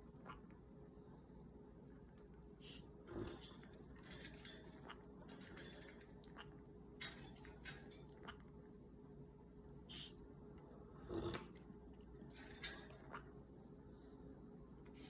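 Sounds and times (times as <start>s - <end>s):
parrot clicks and slurps: 0.0s - 0.6s, 2.2s - 8.8s.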